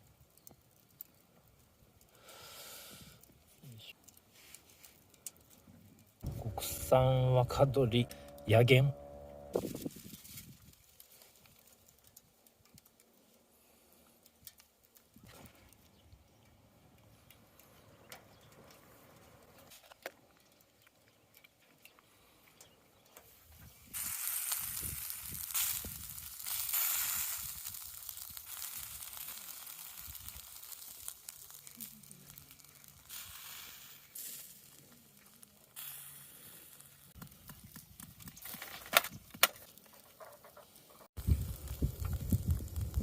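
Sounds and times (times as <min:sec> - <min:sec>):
chicken sizzling: 0:06.0 - 0:12.1, 0:23.3 - 0:37.7, 0:41.1 - 0:43.0
low rumbling noise: 0:06.2 - 0:09.8.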